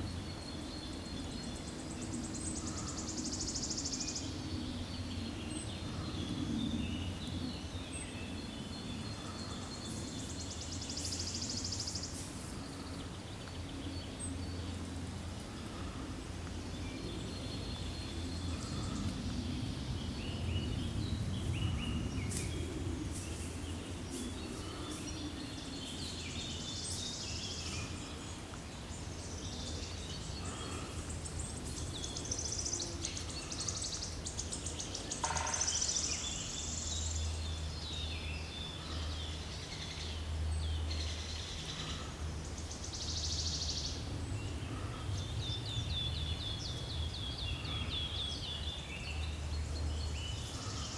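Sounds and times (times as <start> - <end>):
birds chirping and trilling: 16.8 - 50.9.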